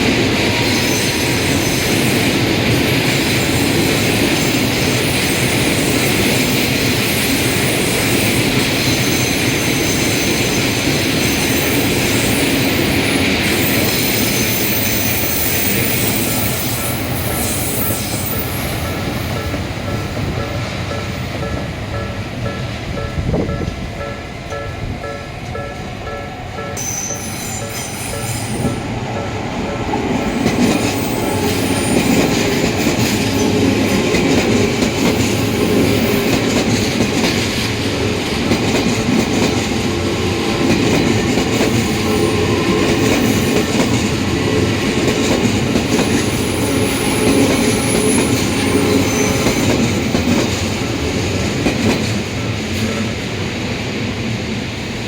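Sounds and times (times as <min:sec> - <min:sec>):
crossing warning bell ringing: 0:00.0 - 0:50.6
train running noise: 0:00.0 - 0:55.0
high wheel squeals: 0:00.4 - 0:02.2, 0:07.2 - 0:19.5, 0:26.8 - 0:28.9, 0:30.3 - 0:34.0, 0:45.8 - 0:50.1.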